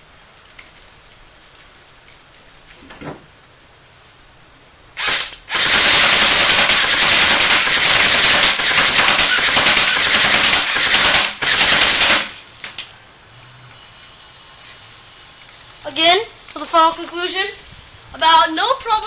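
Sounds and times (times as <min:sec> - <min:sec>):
electric airsoft gun firing bursts: 0:05.0 - 0:12.4.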